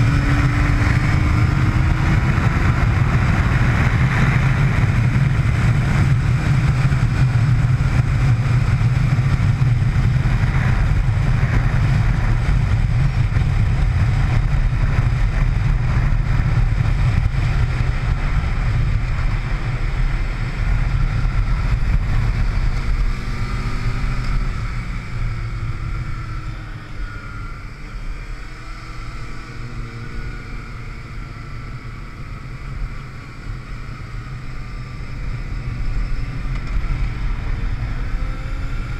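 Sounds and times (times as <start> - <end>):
wind rushing noise: 0.0 - 26.4
motorcycle engine at speed: 0.0 - 38.9.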